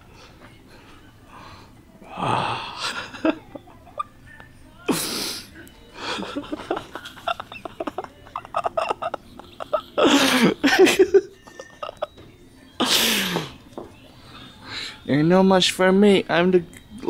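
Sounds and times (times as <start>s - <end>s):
person giggling: 6.0s - 12.2s.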